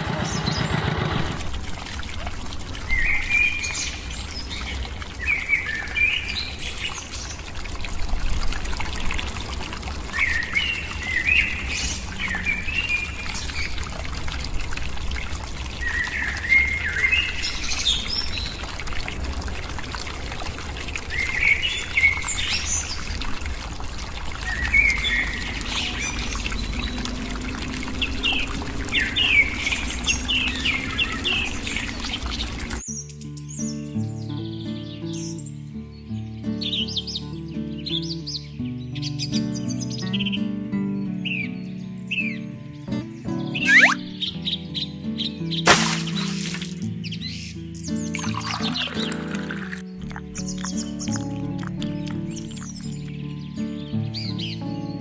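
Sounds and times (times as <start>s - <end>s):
birds chirping: 0.0s - 1.6s, 2.8s - 7.5s, 10.0s - 13.9s, 15.6s - 18.8s, 24.4s - 55.0s
thin stream of water pouring: 1.2s - 32.8s, 43.7s - 44.0s, 45.7s - 47.0s, 47.8s - 53.3s.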